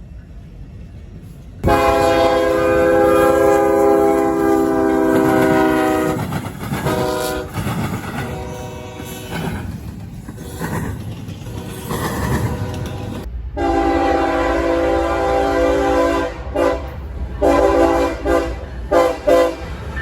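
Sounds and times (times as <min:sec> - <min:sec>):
train rumbling on rails: 0:00.0 - 0:20.0
train air horn blasts: 0:01.6 - 0:07.6, 0:08.2 - 0:09.5, 0:11.5 - 0:19.8.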